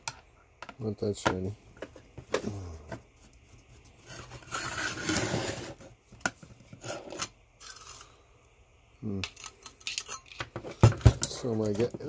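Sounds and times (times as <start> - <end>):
parts scraping and rubbing: 1.7 - 8.2.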